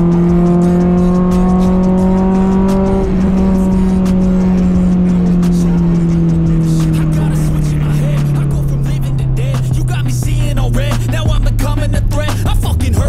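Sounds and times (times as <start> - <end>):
car engine pulling hard: 0.0 - 13.0
music: 0.0 - 13.0.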